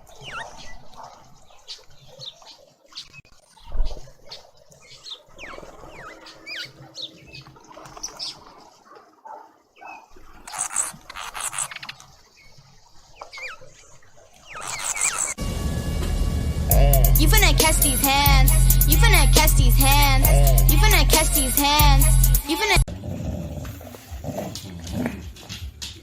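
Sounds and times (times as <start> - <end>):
small animal squeaking and chirping: 10.5 - 12.0, 14.5 - 15.4.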